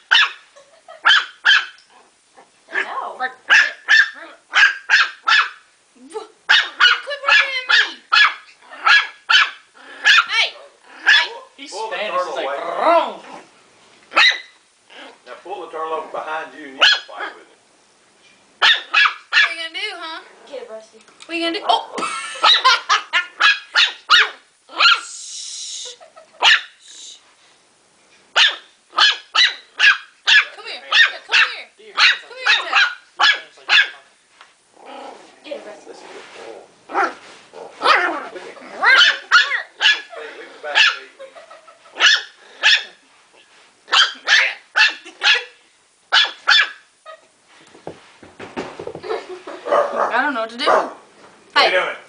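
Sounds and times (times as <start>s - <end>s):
puppy yapping: 0.1s - 0.4s, 1.0s - 1.8s, 2.7s - 5.6s, 6.5s - 10.4s, 11.0s - 11.4s, 14.1s - 15.2s, 16.8s - 17.4s, 18.6s - 19.5s, 21.6s - 25.1s, 26.4s - 26.8s, 28.4s - 34.0s, 37.8s - 40.1s, 40.8s - 41.0s, 42.0s - 43.0s, 43.9s - 47.3s
brief hiss: 26.8s - 27.6s.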